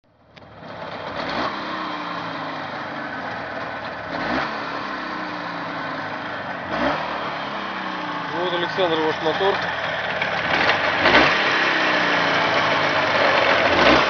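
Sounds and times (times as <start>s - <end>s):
motorcycle engine revving: 0.4s - 14.0s.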